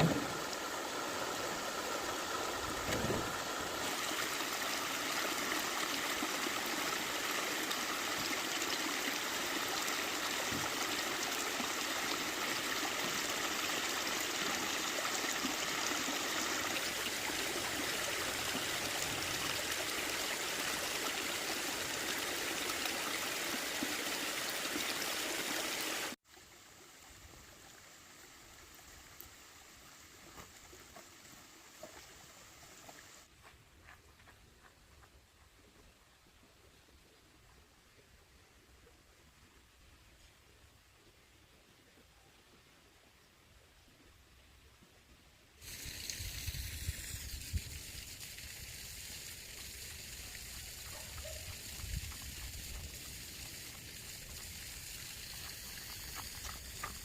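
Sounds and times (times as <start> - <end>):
flowing water rushing: 0.0 - 33.3, 45.6 - 57.0.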